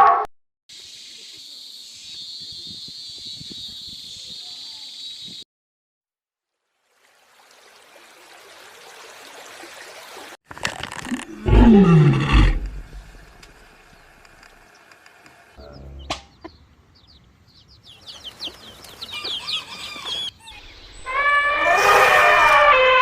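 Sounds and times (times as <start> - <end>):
animal roar: 11.1 - 13.4, 21.1 - 23.0.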